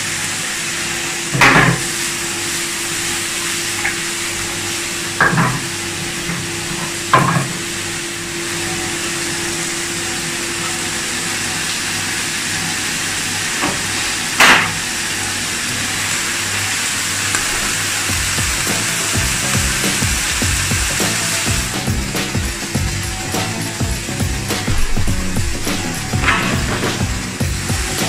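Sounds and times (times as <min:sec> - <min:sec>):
steak sizzling on a grill: 0:00.2 - 0:28.0
utensils knocking on grill: 0:01.4 - 0:02.0, 0:05.2 - 0:07.6, 0:13.6 - 0:14.8, 0:17.3 - 0:28.0.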